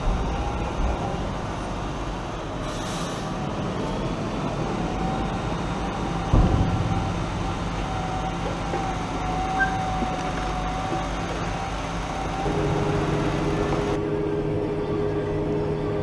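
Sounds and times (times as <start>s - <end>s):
tractor engine running: 3.4s - 14.0s.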